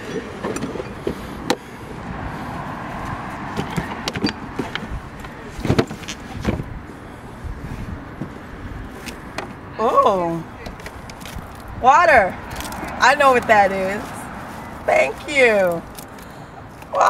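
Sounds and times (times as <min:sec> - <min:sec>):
cooler knocking and scraping: 0:03.4 - 0:06.7.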